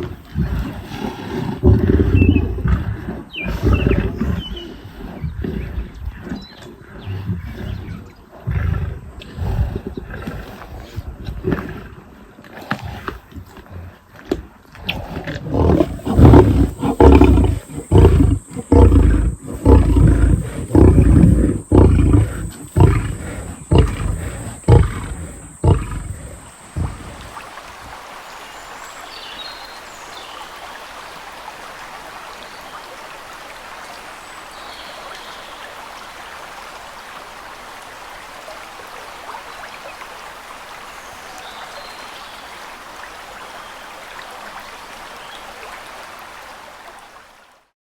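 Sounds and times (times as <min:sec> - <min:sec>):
lion roaring: 0:00.0 - 0:05.8, 0:06.9 - 0:10.5, 0:14.8 - 0:27.4
steady noise hiss: 0:14.9 - 0:47.6.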